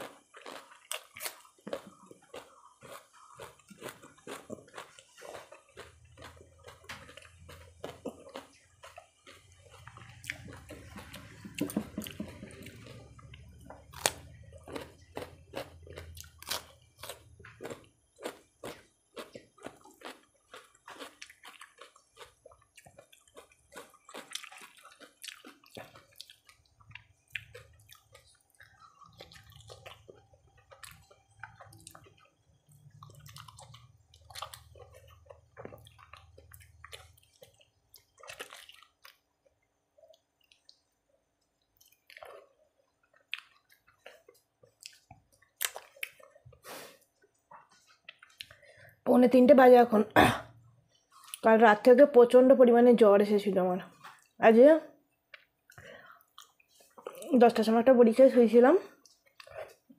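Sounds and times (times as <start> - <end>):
fingers squishing food: 0.0 - 46.5
wet chewing and lip smacks: 17.4 - 46.6, 47.2 - 48.6, 55.3 - 57.3, 59.0 - 59.9.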